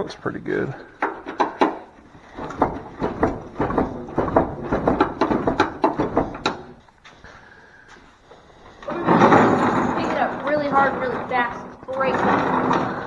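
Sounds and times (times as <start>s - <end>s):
loose sheet metal rattling: 0.7s - 6.8s, 8.8s - 13.0s.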